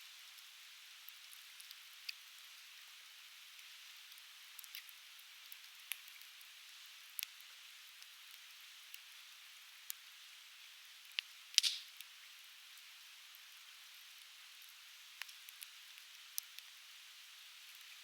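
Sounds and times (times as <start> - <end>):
firewood crackling and popping: 11.0 - 12.1.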